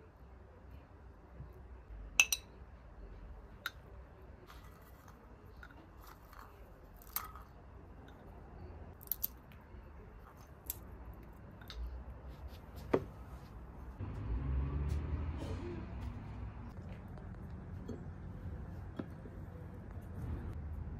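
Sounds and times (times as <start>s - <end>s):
small objects clicking and tapping: 4.5s - 8.3s, 8.9s - 9.6s, 10.3s - 12.0s.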